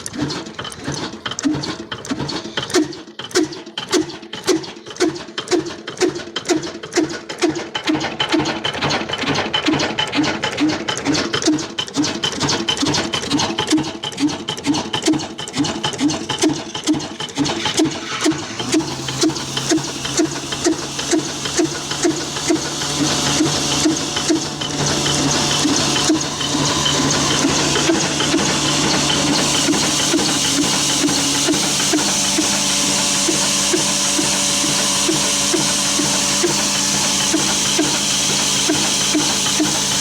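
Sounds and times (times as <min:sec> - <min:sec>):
engine knocking: 0:00.0 - 0:40.0
mechanical clatter: 0:00.0 - 0:40.0.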